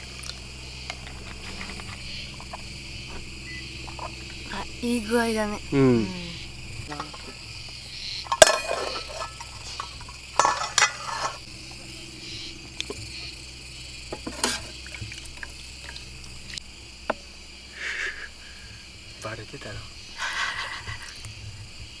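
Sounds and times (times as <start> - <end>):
insects chirping: 0.0 - 22.0
dishes and utensils clattering: 8.2 - 11.4, 14.1 - 14.8.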